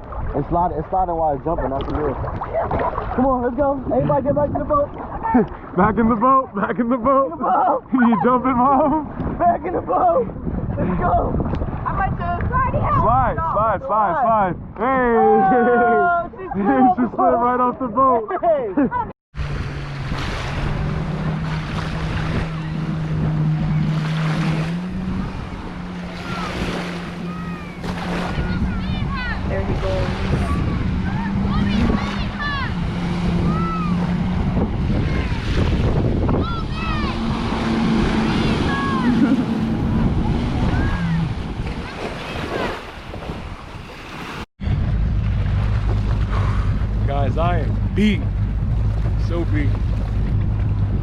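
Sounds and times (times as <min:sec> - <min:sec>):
splashing water: 0:00.0 - 0:04.0, 0:19.4 - 0:51.0
wind noise: 0:00.0 - 0:06.2, 0:07.8 - 0:18.0, 0:18.9 - 0:51.0
jet ski engine running: 0:19.4 - 0:51.0.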